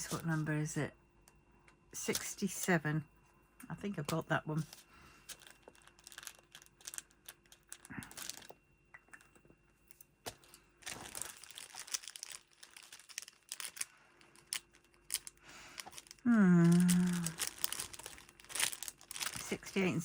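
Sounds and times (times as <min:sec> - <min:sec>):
paper stickers rustling and crinkling: 0:00.0 - 0:00.5, 0:03.9 - 0:08.5, 0:10.3 - 0:20.0.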